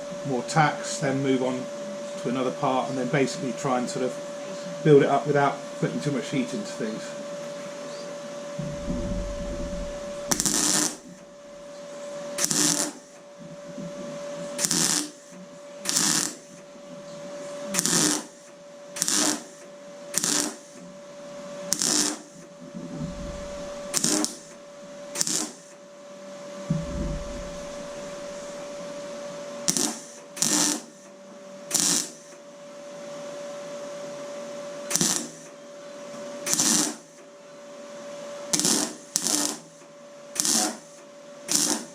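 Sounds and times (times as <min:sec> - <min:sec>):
steady hum: 0:00.0 - 0:18.1, 0:22.4 - 0:25.1, 0:26.5 - 0:30.3
crackling tack welds: 0:08.6 - 0:11.7, 0:12.4 - 0:13.2, 0:14.6 - 0:16.6, 0:17.7 - 0:20.9, 0:21.7 - 0:25.8, 0:26.8 - 0:28.8, 0:29.6 - 0:31.1, 0:31.7 - 0:32.4, 0:34.9 - 0:35.6, 0:36.4 - 0:37.3, 0:38.5 - 0:41.9.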